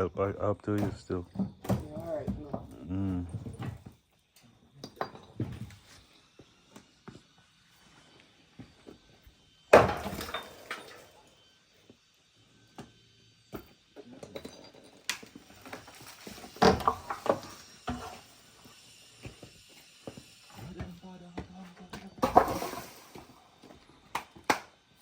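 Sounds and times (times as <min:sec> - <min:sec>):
hard objects clattering crash: 0:14.4 - 0:17.6, 0:22.2 - 0:23.4.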